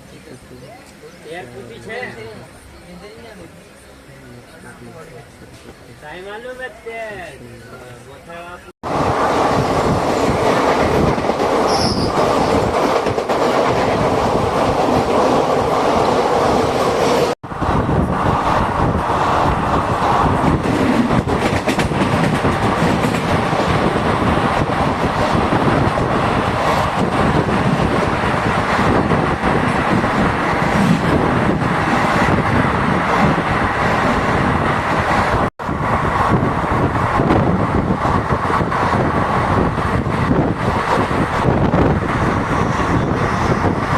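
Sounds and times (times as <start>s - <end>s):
train wheels rumbling and rattling: 8.8s - 43.9s.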